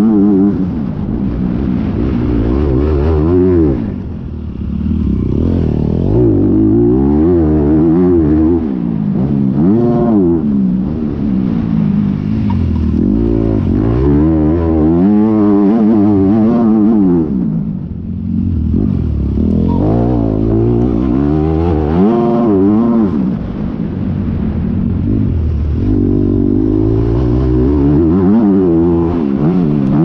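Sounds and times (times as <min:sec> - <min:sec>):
motocross bike engine revving: 0:01.8 - 0:10.5, 0:11.2 - 0:17.4, 0:18.2 - 0:23.6.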